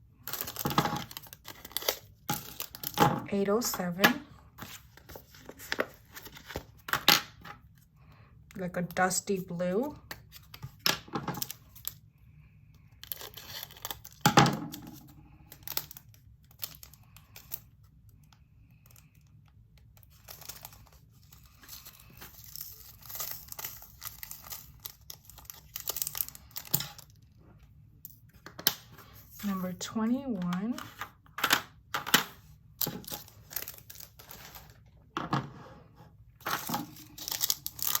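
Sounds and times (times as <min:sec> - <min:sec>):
plastic bags crinkling: 0:00.2 - 0:03.0, 0:20.1 - 0:27.2, 0:32.8 - 0:34.8, 0:36.4 - 0:38.0.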